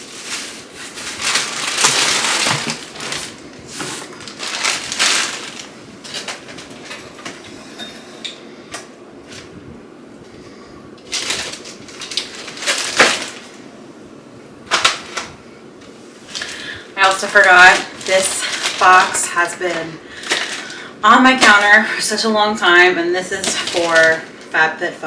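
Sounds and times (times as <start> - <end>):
packaging rustling and crinkling: 0.0 - 8.1, 11.0 - 13.8, 14.7 - 22.3, 23.2 - 24.6.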